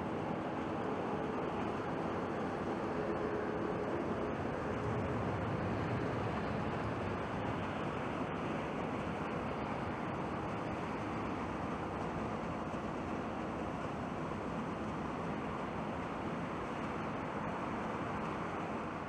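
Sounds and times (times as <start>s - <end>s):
jet engine roar: 1.1s - 11.8s.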